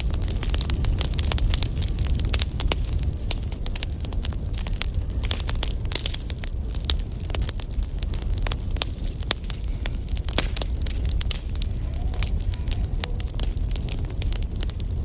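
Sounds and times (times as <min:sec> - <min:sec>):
burning firewood crackling and popping: 0:00.0 - 0:15.0
low rumble of fire: 0:00.0 - 0:15.0.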